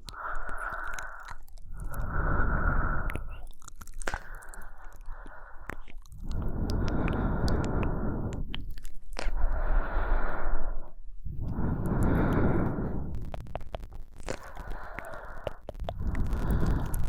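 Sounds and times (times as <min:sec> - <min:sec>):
close human breathing: 0:00.0 - 0:17.0
small clicks: 0:13.1 - 0:17.0.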